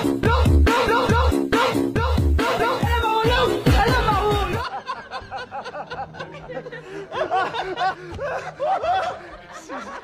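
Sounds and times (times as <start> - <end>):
man laughing hard: 4.2 - 10.0.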